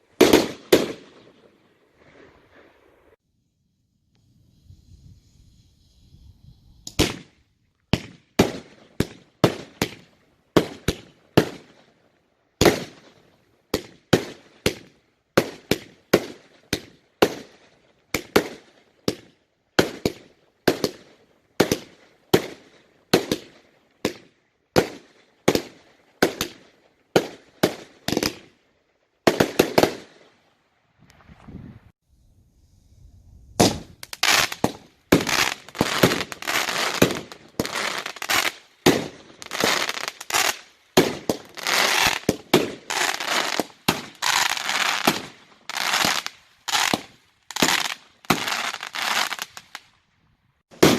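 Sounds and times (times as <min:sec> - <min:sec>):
fireworks bangs: 0:00.0 - 0:02.7, 0:06.8 - 0:11.8, 0:33.6 - 0:49.8.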